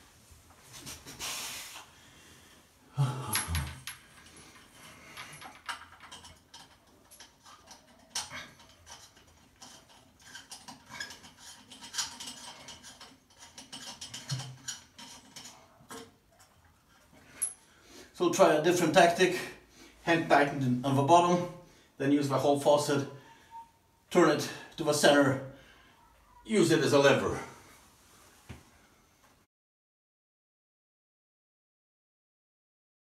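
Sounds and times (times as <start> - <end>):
metallic clinks and scrapes: 3.3 - 17.7.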